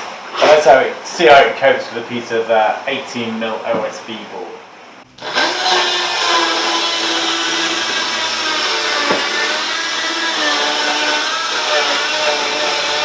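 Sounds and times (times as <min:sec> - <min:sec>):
circular saw cutting board: 0:05.1 - 0:13.0.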